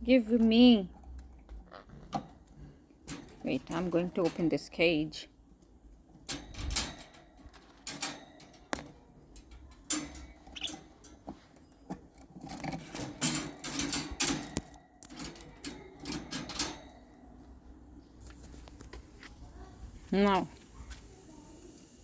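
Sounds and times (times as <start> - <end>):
metal birdcage latch clicking: 6.2 - 11.2, 11.9 - 17.2.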